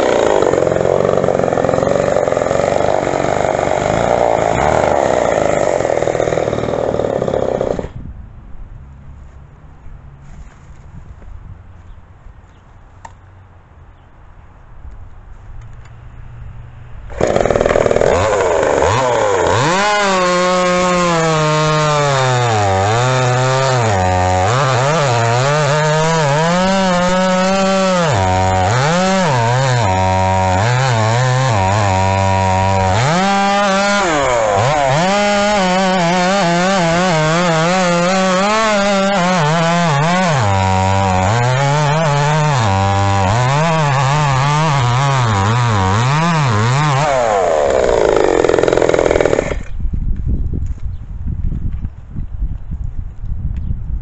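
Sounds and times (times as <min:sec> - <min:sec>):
chainsaw cutting wood: 0:00.0 - 0:08.0, 0:17.1 - 0:49.8.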